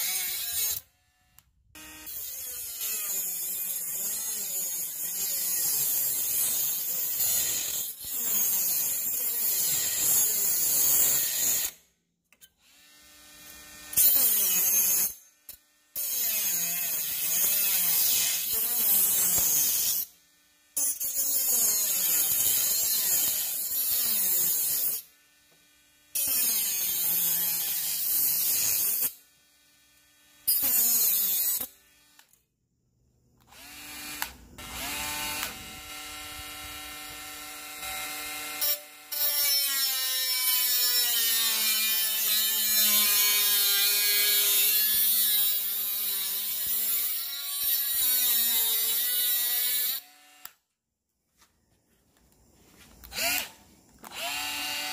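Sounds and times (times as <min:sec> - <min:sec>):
cordless angle grinder running: 0:12.6 - 0:32.3, 0:33.5 - 0:50.6, 0:53.0 - 0:54.9.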